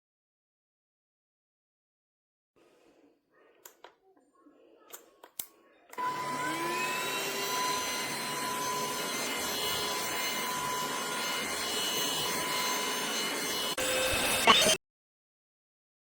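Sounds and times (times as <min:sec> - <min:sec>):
vacuum motor whining: 0:05.9 - 0:14.8.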